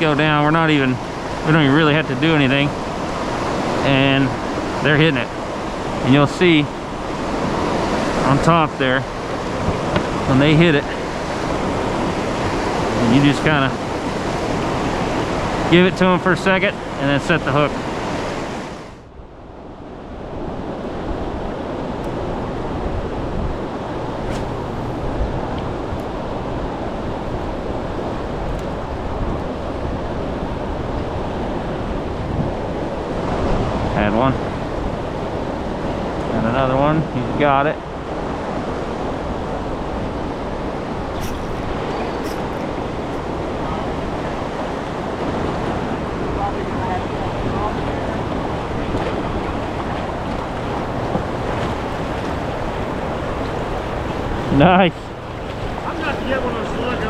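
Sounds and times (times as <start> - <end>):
fast river current rushing: 0.0 - 57.0
wind on microphone: 17.7 - 36.4, 37.1 - 57.0.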